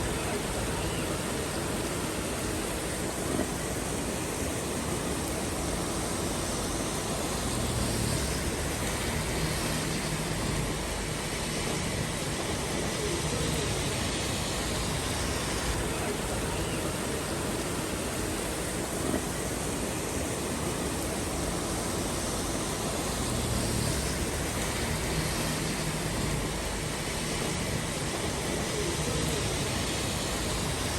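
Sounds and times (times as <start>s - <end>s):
heavy rain hissing: 0.0s - 30.9s.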